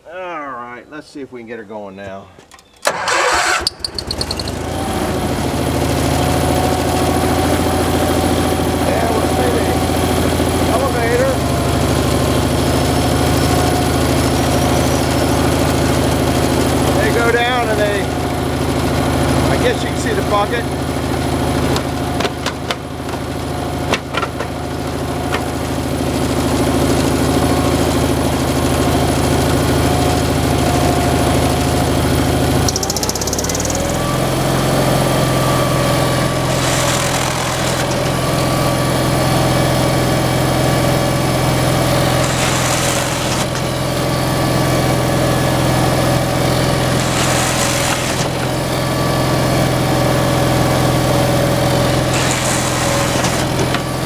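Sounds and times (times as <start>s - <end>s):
machine engine running: 3.0s - 54.0s
short hissy bursts: 42.1s - 43.8s, 46.8s - 48.7s, 52.0s - 53.9s.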